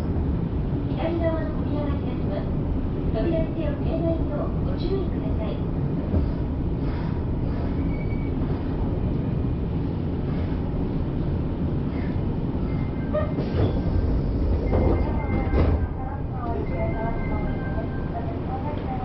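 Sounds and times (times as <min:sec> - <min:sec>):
train rumble from inside car: 0:00.0 - 0:19.0.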